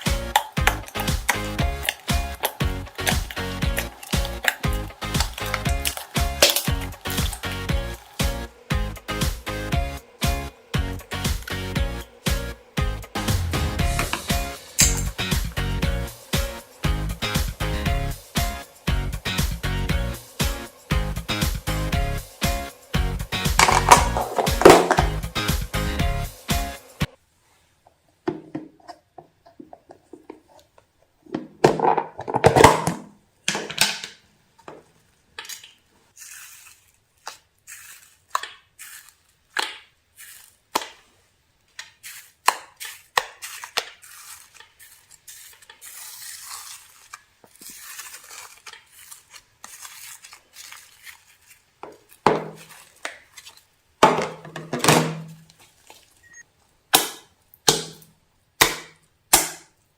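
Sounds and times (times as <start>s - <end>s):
utensil scraping a mixing bowl: 0.0s - 12.6s.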